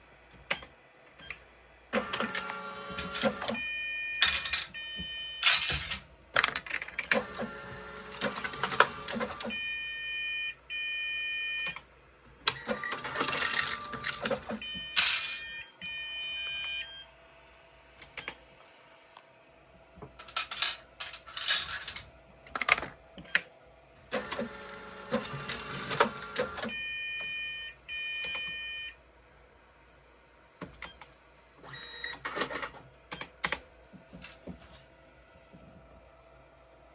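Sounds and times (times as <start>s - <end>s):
change machine whirring and clattering: 2.0s - 3.6s, 4.2s - 4.8s, 5.4s - 9.6s, 12.4s - 15.5s, 20.1s - 23.0s, 24.1s - 26.7s.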